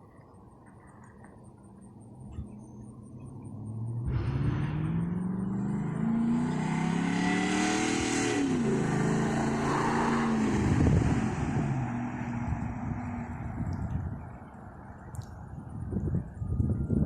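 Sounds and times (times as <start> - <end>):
truck engine accelerating: 2.1 - 14.2.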